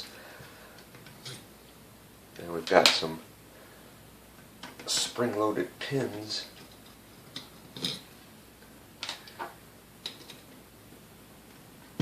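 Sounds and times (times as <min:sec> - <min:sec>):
small parts clicking and tapping: 0:09.0 - 0:10.5.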